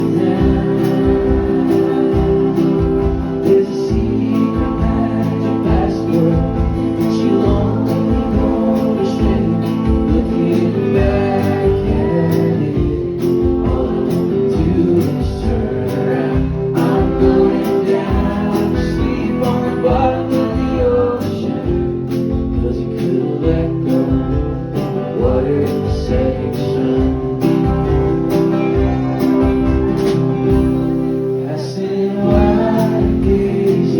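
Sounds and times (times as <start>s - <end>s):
guitar: 0.0s - 33.9s
live band playing folk song: 0.0s - 33.9s.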